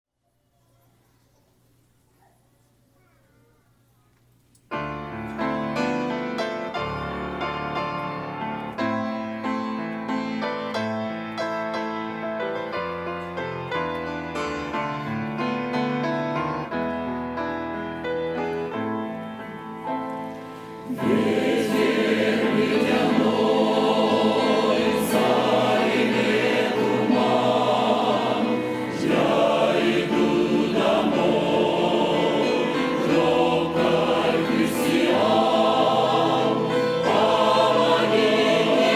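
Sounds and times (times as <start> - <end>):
choir singing: 20.4 - 38.9.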